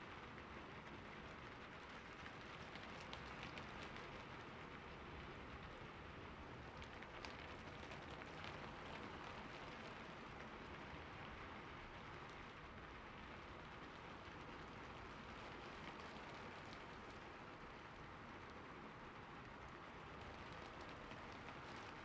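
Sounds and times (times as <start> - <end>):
rain falling on a roof: 0.0 - 22.0.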